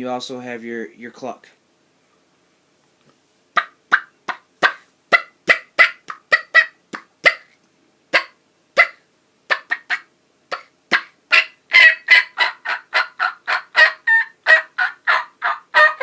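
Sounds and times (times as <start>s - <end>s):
turkey call clucks: 3.6s - 16.0s.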